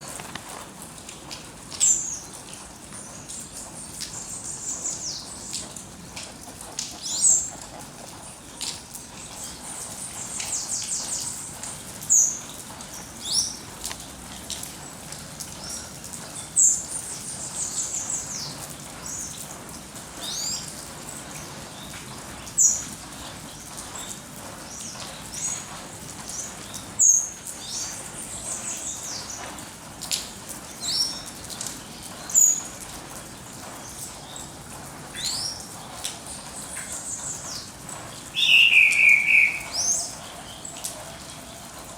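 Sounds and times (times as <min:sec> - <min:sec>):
songbirds singing: 0:01.8 - 0:13.7, 0:33.4 - 0:41.9.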